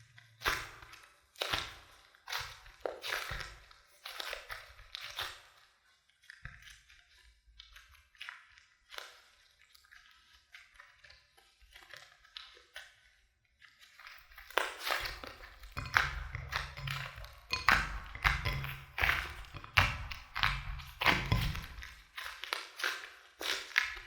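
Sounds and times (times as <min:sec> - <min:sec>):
slime squished by hand: 0:00.2 - 0:24.0.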